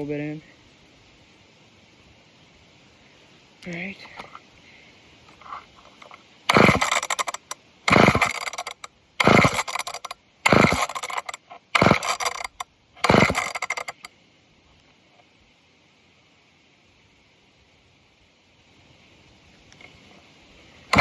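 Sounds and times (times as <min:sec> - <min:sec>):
chainsaw engine turning over: 0:05.4 - 0:14.1
recoil cord ripping: 0:06.5 - 0:14.1.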